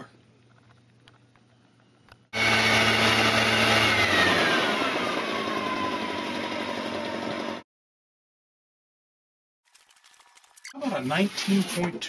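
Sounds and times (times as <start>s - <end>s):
leaf blower running: 2.3s - 7.6s.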